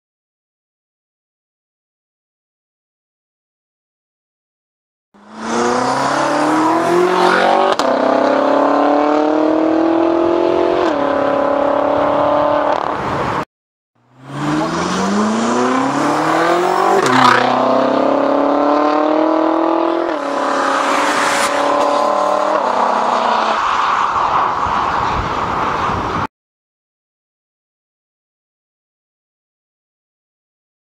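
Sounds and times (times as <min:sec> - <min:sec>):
car engine accelerating hard: 0:05.2 - 0:13.0, 0:14.0 - 0:23.6.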